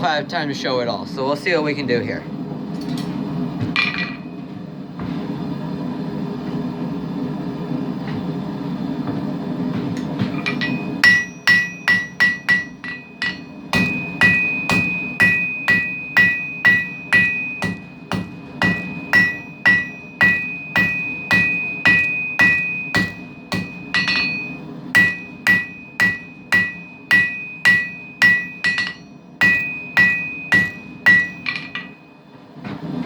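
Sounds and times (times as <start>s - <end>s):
hammer ringing on anvil: 10.4s - 32.2s.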